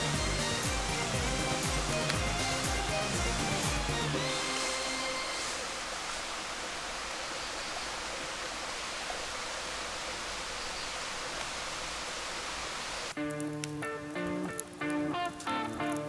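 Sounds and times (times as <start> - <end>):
music with plucked notes: 0.0 - 5.1, 13.2 - 16.0
heavy rain falling: 0.0 - 13.2.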